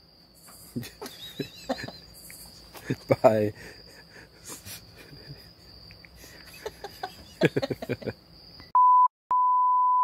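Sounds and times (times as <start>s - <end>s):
insect trill: 0.0s - 8.7s
loud pure bleep tone: 8.7s - 10.0s.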